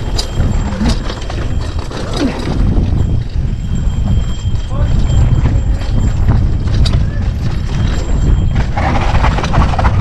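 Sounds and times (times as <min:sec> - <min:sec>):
bike rattling on dirt trail: 0:00.0 - 0:10.0
wind rumble on microphone: 0:00.0 - 0:10.0.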